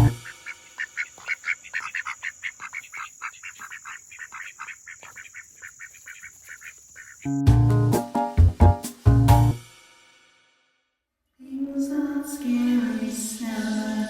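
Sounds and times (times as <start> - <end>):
duck calling rapidly: 0.0 - 7.4.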